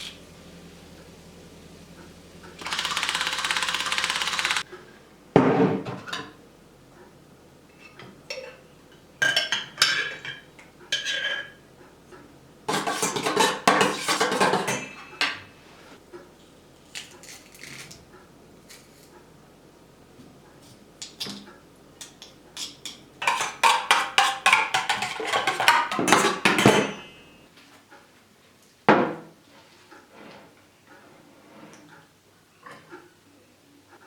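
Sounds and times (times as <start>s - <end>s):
dishes and cutlery clattering: 9.2s - 11.6s, 12.7s - 15.5s, 21.1s - 27.3s.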